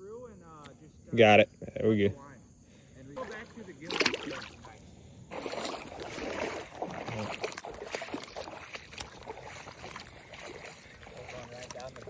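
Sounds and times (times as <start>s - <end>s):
creek water sloshing and splashing: 3.2s - 12.0s.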